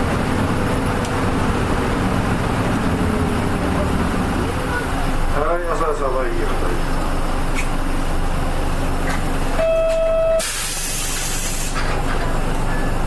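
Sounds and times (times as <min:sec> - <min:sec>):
bus engine running: 0:00.0 - 0:13.0
electronic beep: 0:09.6 - 0:10.4
compressed air hiss: 0:10.4 - 0:11.9.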